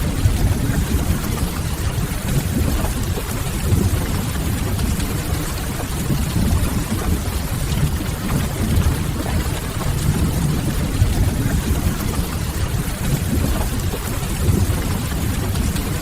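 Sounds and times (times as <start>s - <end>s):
steady rain: 0.0s - 16.0s
low rumble: 6.3s - 12.6s.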